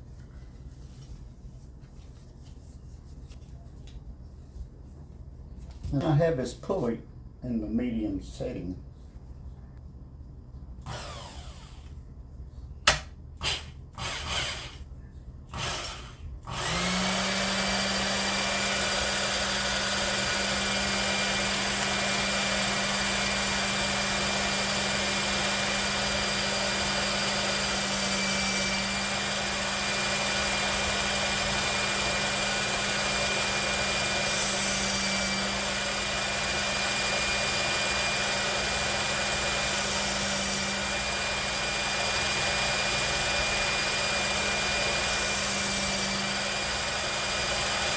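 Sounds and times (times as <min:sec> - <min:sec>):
belt grinder motor running: 0:10.8 - 0:11.9, 0:13.4 - 0:14.8, 0:15.5 - 0:47.9.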